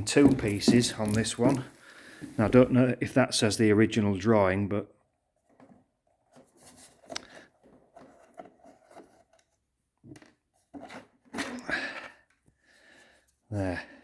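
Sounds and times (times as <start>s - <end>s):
handling clicks and knocks: 0.0s - 2.8s.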